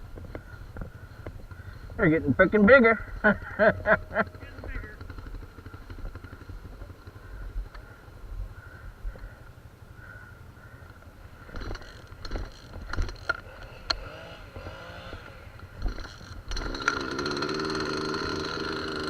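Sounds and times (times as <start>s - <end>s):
small engine running: 1.9s - 9.4s, 11.3s - 19.0s.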